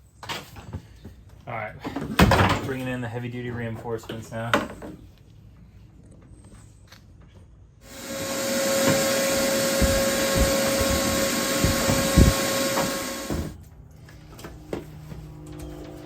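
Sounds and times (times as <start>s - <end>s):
shop vac whining: 7.8s - 16.0s.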